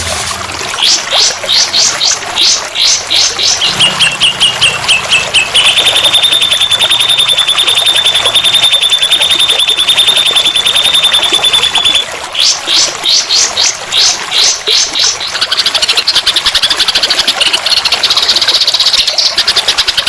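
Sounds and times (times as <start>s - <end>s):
songbird high trill: 0.8s - 15.7s
songbird chirps: 0.8s - 17.0s.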